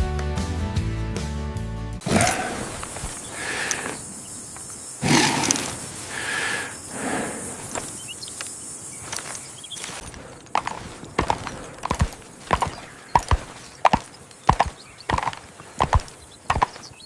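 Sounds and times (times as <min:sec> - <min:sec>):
footsteps on firm ground: 0:02.4 - 0:04.0, 0:07.5 - 0:17.0.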